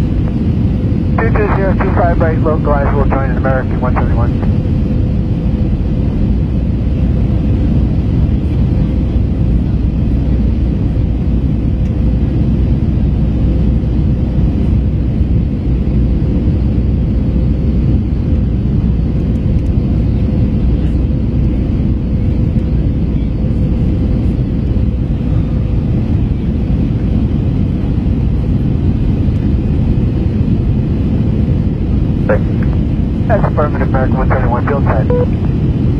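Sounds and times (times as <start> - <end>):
airplane cabin engine drone: 0.0 - 35.9
faint steady hum: 33.3 - 35.4.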